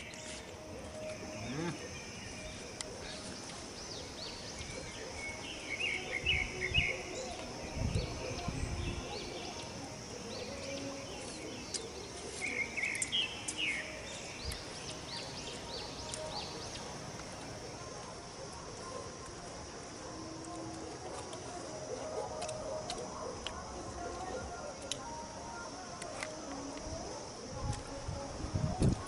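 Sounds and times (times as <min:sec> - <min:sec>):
bird chirping: 0:00.0 - 0:17.7
steady high hiss: 0:00.0 - 0:29.0.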